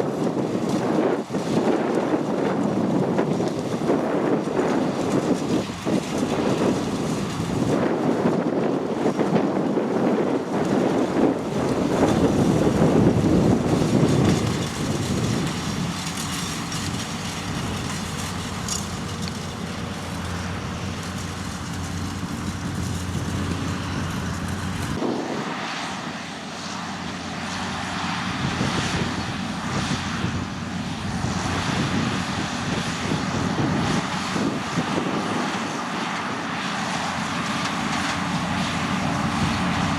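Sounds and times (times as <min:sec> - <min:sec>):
tractor engine running: 0:02.7 - 0:34.4, 0:35.8 - 0:39.9.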